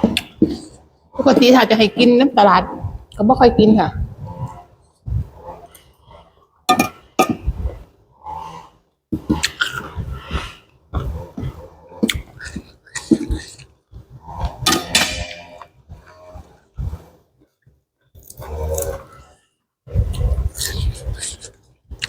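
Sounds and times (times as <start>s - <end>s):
person chewing: 12.0s - 14.5s, 20.1s - 22.0s.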